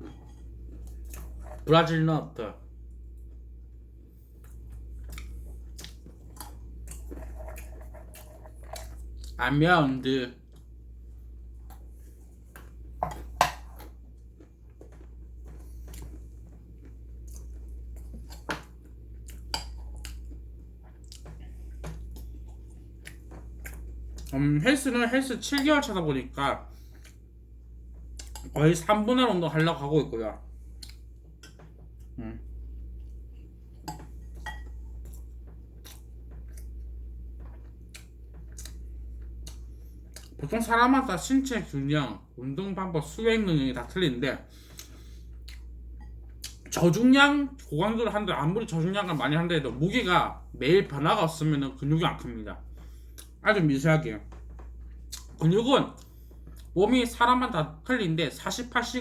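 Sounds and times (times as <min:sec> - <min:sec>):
steady low hum: 0:00.0 - 0:59.0
person chewing almonds: 0:04.3 - 0:09.4, 0:11.7 - 0:24.4, 0:35.0 - 0:40.4, 0:56.0 - 0:56.8.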